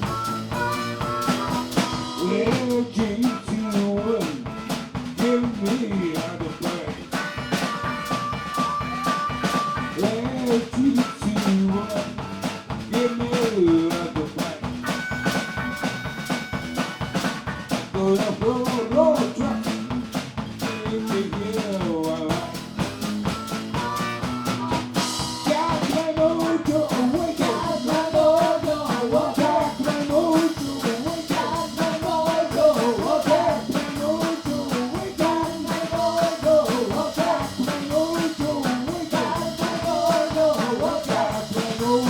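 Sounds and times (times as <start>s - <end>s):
live band playing upbeat song: 0.0s - 42.0s.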